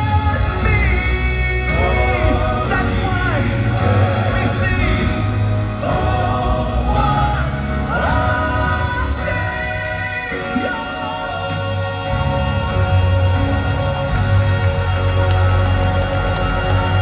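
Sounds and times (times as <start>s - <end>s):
live band with heavy bass: 0.0s - 17.0s
male vocal quartet singing: 0.0s - 17.0s.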